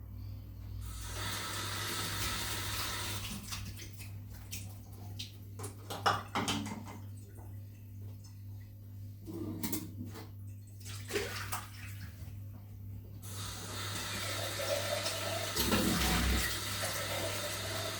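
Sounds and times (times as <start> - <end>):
water running from tap: 0.9 - 5.4, 13.2 - 17.9.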